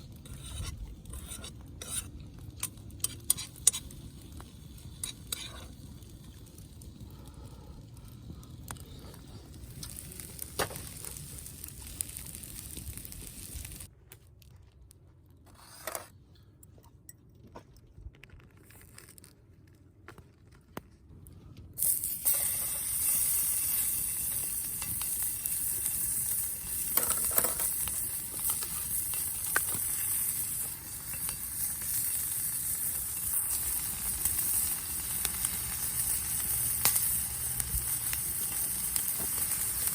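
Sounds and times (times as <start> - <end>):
metal utensil clinking and scraping: 0.2 - 4.0, 5.0 - 5.8, 26.8 - 32.0
food sizzling in a pan: 9.7 - 13.9, 21.8 - 39.9.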